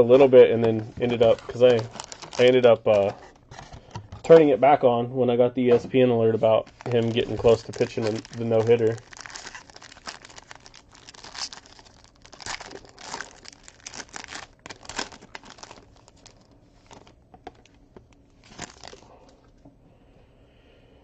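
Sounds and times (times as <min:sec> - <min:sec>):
plastic wrapping crinkling and tearing: 0:00.0 - 0:03.3, 0:06.4 - 0:19.3.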